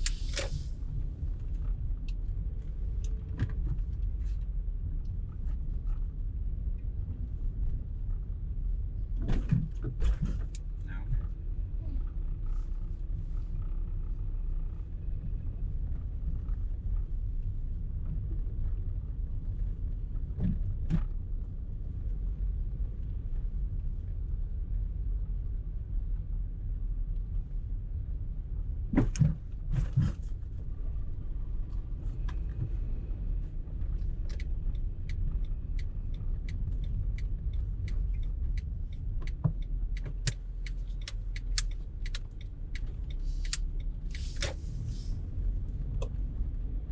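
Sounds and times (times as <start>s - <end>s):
road and engine rumble: 0.0s - 46.9s
regular ticking: 34.3s - 44.0s.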